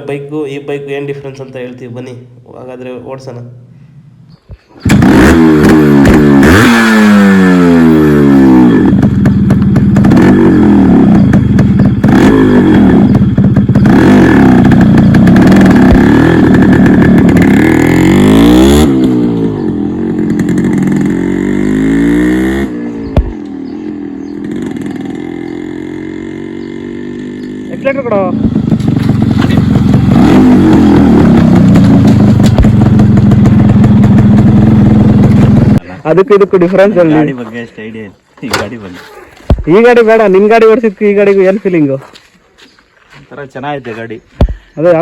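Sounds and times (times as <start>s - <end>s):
motorcycle engine revving: 4.8s - 37.3s.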